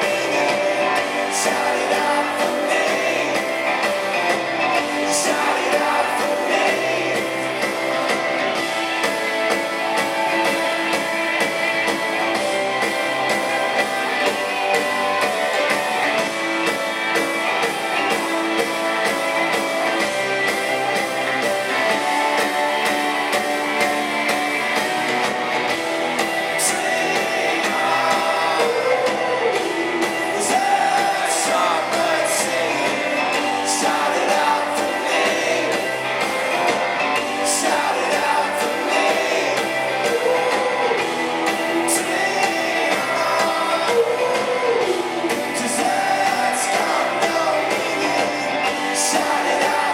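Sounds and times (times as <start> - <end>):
person singing: 0.0 - 8.7, 26.4 - 49.9
drums: 0.0 - 49.9
live rock band playing: 0.0 - 49.9
strummed guitars: 0.0 - 49.9.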